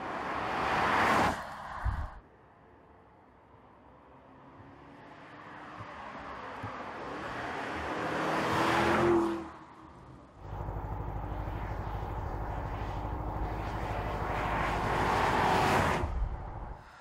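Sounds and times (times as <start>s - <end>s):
pulsing rumble of moving car: 5.4s - 17.0s
car engine revving: 10.4s - 16.8s.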